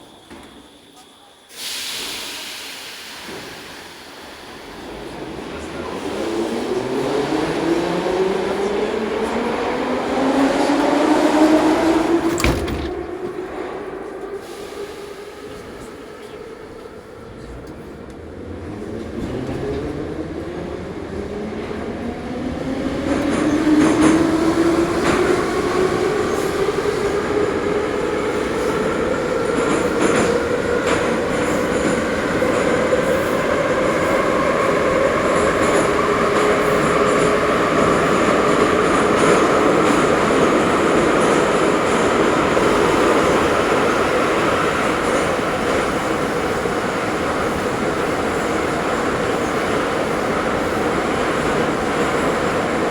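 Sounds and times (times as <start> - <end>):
train rumble: 4.8 - 52.9.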